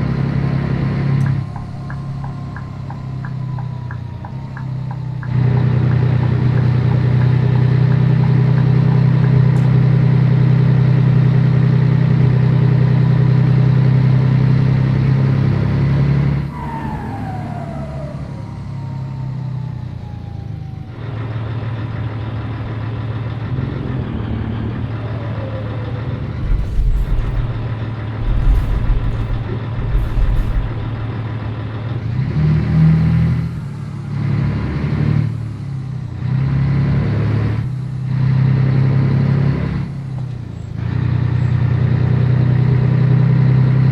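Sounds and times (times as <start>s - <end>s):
truck diesel engine under load: 0.0s - 43.9s
low bumps: 26.4s - 31.5s.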